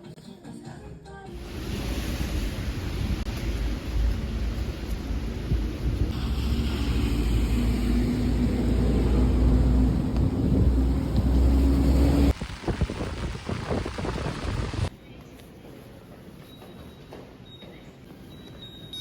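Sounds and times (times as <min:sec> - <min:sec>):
subway train rumbling: 0:01.3 - 0:14.9.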